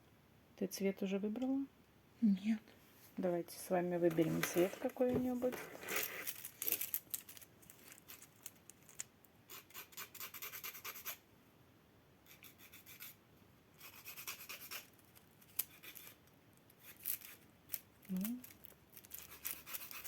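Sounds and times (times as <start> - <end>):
nail file rasping on fingernails: 9.5 - 11.2, 12.3 - 13.2, 13.8 - 17.8, 19.1 - 20.0.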